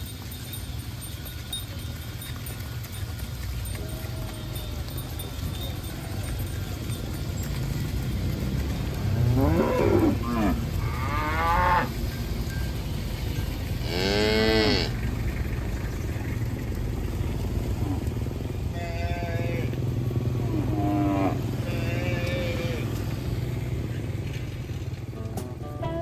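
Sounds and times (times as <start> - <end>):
cows mooing: 3.7 - 12.2, 13.8 - 15.3, 17.0 - 23.6.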